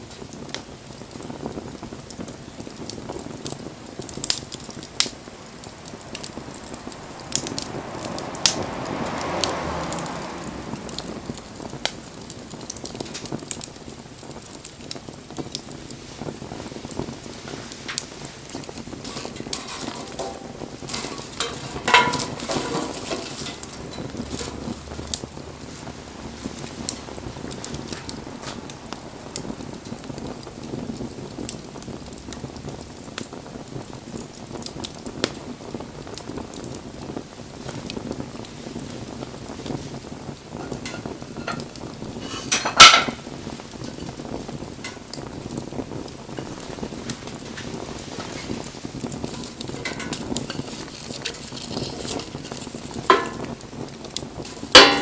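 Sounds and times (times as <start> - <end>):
sharp pops of fire: 0.0 - 55.0
wood fire crackling: 0.0 - 55.0
loud clatter: 19.0 - 24.9.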